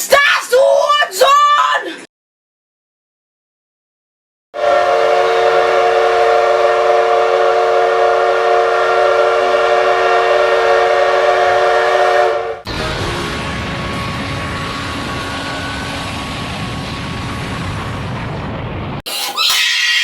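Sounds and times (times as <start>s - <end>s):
train horn chord: 4.6s - 14.0s.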